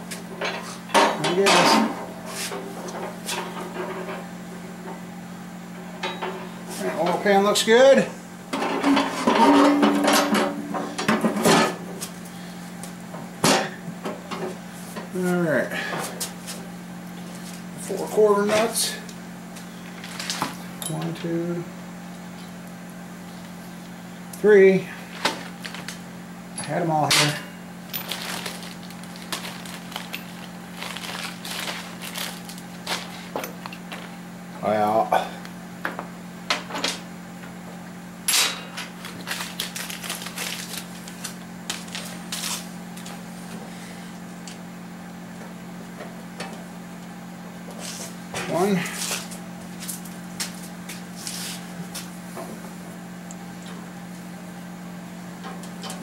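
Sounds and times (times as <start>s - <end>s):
steady electrical hum: 0.0s - 56.0s.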